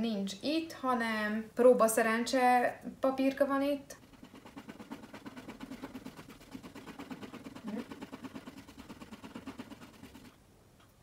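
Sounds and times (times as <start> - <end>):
scratching on paper card: 4.0 - 10.4.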